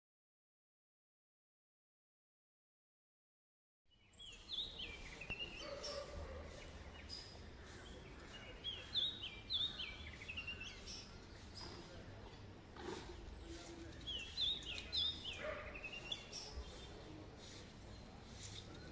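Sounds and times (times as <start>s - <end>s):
bird singing whistled notes: 14.0s - 16.8s.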